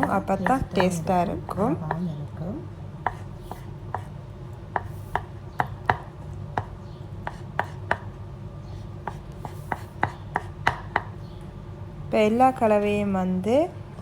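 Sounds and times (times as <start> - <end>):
knife chopping on cutting board: 3.0 - 4.1, 4.7 - 8.1, 9.0 - 11.1.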